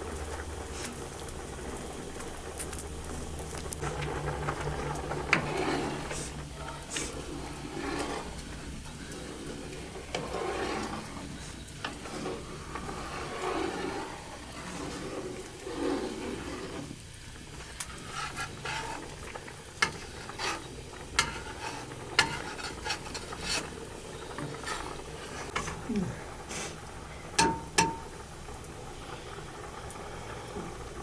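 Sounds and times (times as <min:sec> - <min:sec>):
spoon scraping cooking pot: 0:04.9 - 0:25.9
utensil tapping against pot: 0:27.4 - 0:28.1.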